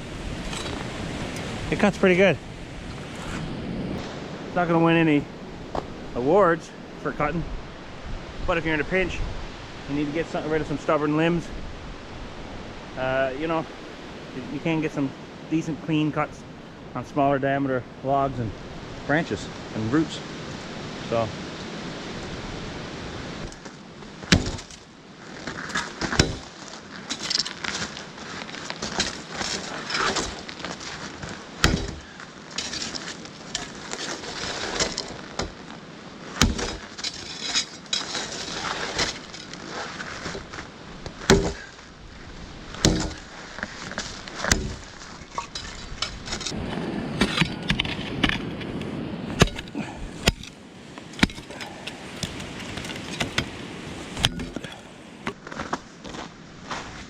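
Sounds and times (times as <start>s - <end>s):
wind noise: 0.0s - 6.4s, 7.2s - 15.4s, 18.4s - 54.9s
shovel blade striking wood: 24.3s - 24.8s, 25.6s - 28.0s, 28.6s - 35.6s, 36.4s - 40.5s, 41.2s - 41.7s, 42.8s - 46.6s, 49.3s - 50.6s, 51.2s - 53.5s.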